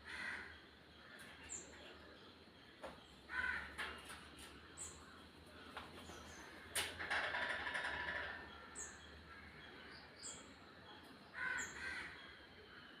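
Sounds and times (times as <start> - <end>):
crows cawing: 0.0 - 1.3, 3.3 - 4.0, 6.5 - 8.7, 11.3 - 12.4.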